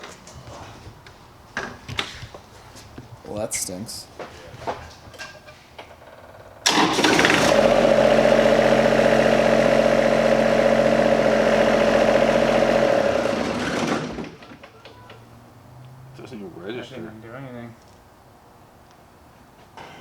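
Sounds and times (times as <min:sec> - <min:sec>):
motor running: 0:06.7 - 0:14.3.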